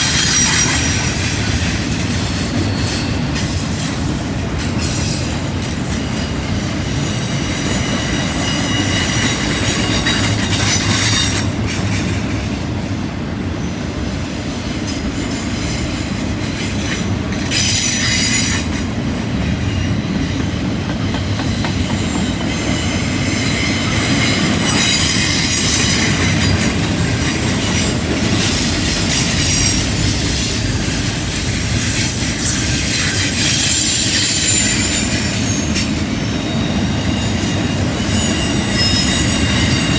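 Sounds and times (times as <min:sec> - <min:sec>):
train wheels rumbling on rails: 0:00.0 - 0:39.9
high-pitched wheel squeal: 0:31.3 - 0:39.9.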